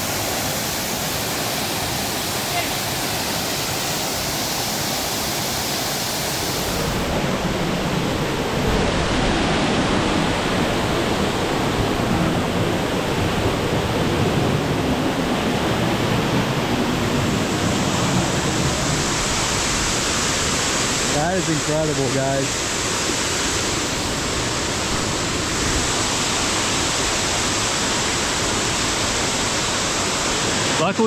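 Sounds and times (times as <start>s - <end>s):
waterfall pouring: 0.0s - 13.1s.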